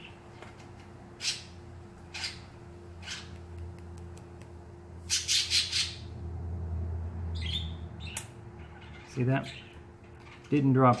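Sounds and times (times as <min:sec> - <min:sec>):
steady low hum: 0:00.0 - 0:11.0
bird squawking: 0:01.2 - 0:03.4, 0:05.0 - 0:06.1.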